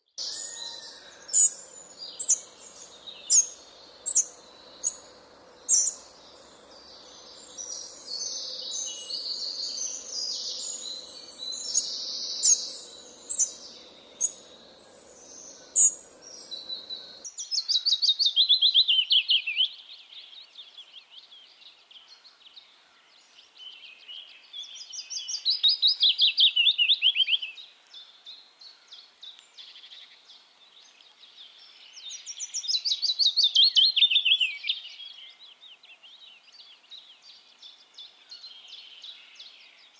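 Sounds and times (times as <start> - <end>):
songbirds chirping: 0.0 - 39.9
bird singing falling trills: 0.2 - 17.2
steady background hiss: 0.2 - 20.0.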